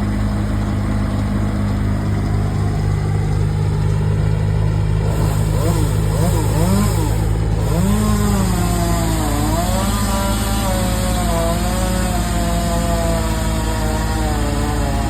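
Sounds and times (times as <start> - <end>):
chainsaw cutting wood: 3.8 - 15.0.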